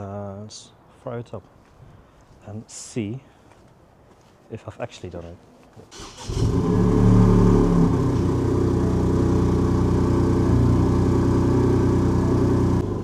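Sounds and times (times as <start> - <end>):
car engine idling: 6.2 - 13.0.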